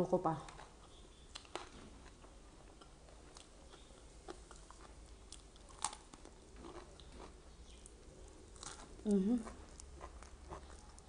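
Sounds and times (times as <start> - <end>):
person chewing: 0.5 - 11.0.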